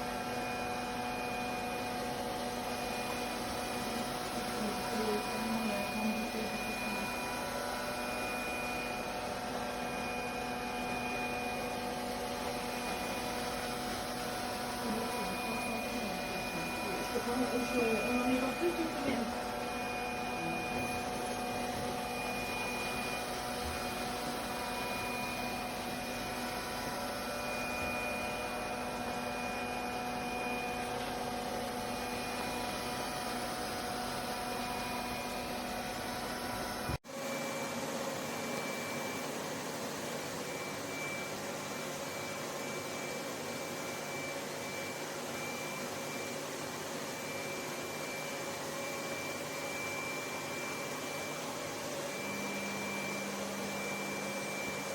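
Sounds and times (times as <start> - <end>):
robot vacuum whirring: 12.4 - 33.5.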